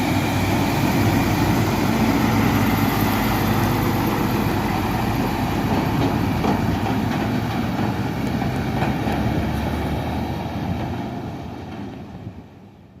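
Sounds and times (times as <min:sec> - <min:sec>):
dump truck rumbling past: 0:00.0 - 0:13.0.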